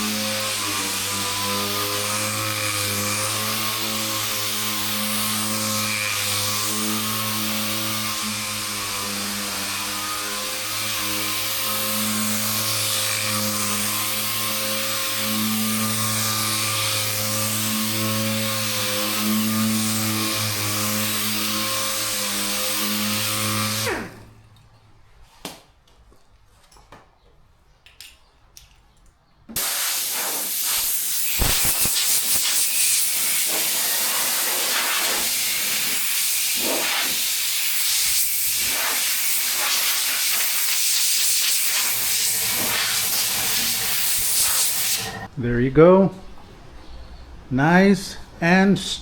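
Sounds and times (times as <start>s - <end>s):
orbital sander running: 0.0s - 24.3s, 29.6s - 45.3s
compressed air hissing: 29.6s - 45.3s.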